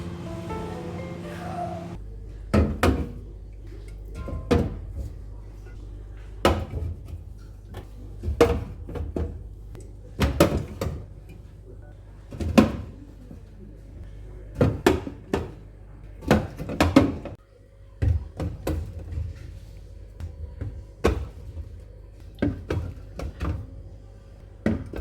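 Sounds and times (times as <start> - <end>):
doors and cupboards opening and closing: 0.0 - 2.0
low steady hum: 0.0 - 2.1.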